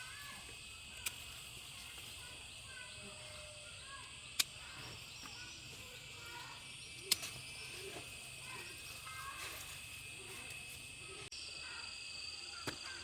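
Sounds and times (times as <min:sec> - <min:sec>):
faint bird chirps: 0:00.0 - 0:13.0
insect chorus: 0:00.0 - 0:13.0
sharp clicks: 0:04.3 - 0:04.6.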